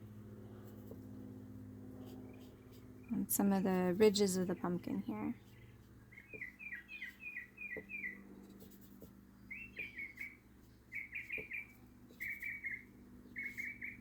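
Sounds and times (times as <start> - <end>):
faint steady hum: 0.0 - 14.0
bird chirping in bursts: 5.5 - 8.2, 9.4 - 14.0.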